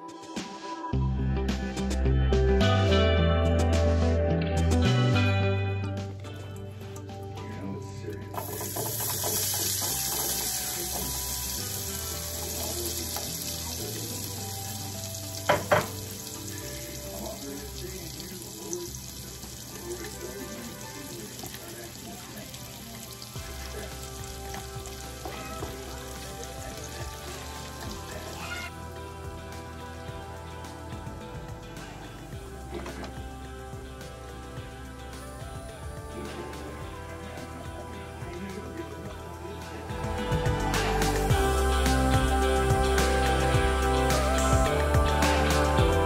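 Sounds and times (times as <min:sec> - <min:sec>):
vegetables sizzling in hot oil: 0:08.4 - 0:29.9.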